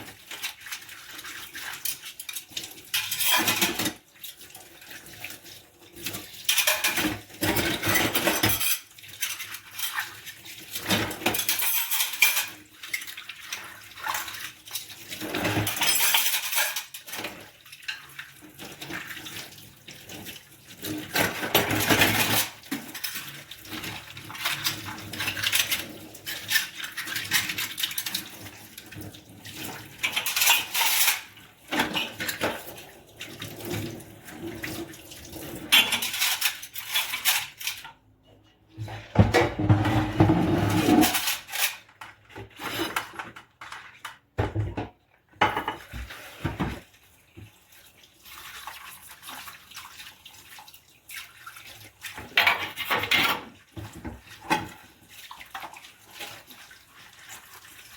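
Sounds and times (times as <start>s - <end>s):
running or splashing water: 0.0s - 44.4s, 45.7s - 57.9s
plates and cutlery clinking: 6.5s - 10.0s, 10.8s - 12.6s, 15.3s - 17.3s, 30.0s - 32.6s, 35.6s - 37.8s, 39.2s - 41.8s.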